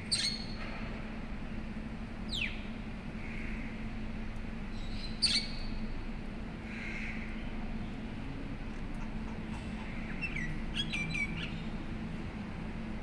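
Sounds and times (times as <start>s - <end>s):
low steady hum: 0.0s - 13.0s
bird calling: 9.0s - 11.6s.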